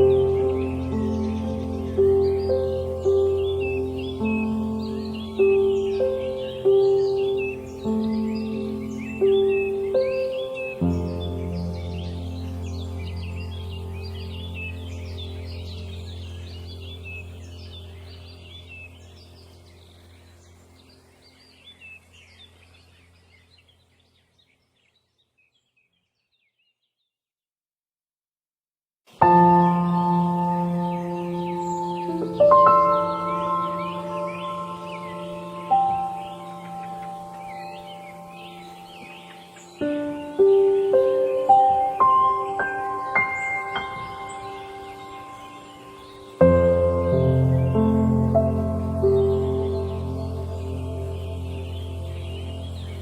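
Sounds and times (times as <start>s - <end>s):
small birds chirping and singing: 0.0s - 27.2s, 29.1s - 53.0s
steady low drone: 43.8s - 53.0s.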